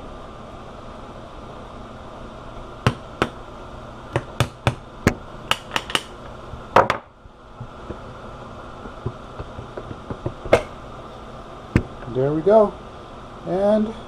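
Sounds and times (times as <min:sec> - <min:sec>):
sharp taps on metal compressor: 0:09.0 - 0:10.8.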